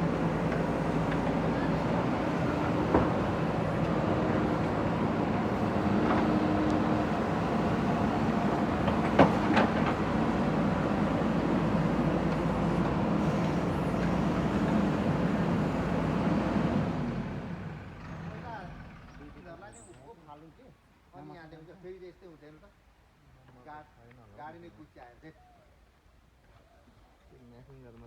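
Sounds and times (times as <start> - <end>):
diesel engine running: 0.0 - 19.2.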